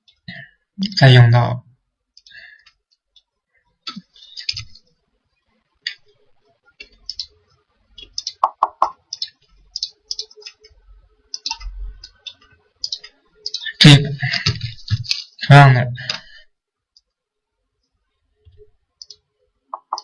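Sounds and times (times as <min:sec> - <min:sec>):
computer mouse clicking: 0:08.0 - 0:13.6, 0:19.0 - 0:19.2, 0:19.8 - 0:20.0.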